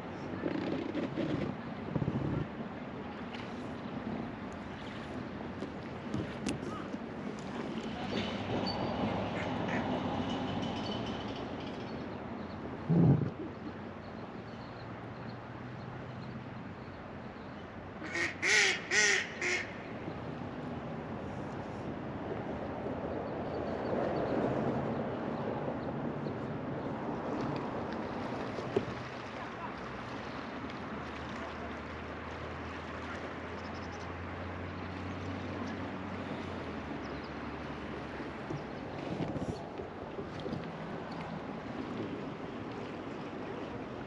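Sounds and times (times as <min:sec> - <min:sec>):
river water rushing: 0:26.9 - 0:44.0.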